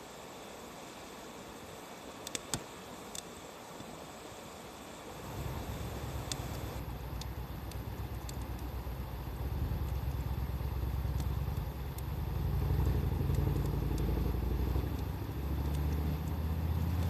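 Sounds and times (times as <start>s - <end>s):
wood fire crackling and popping: 2.2s - 3.3s, 5.2s - 17.0s.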